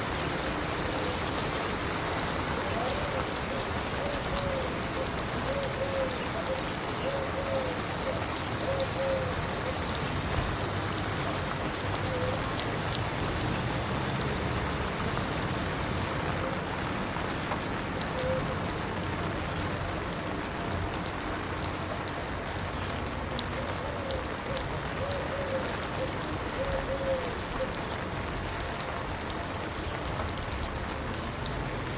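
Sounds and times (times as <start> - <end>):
rain pattering on hard surfaces: 0.0 - 31.9.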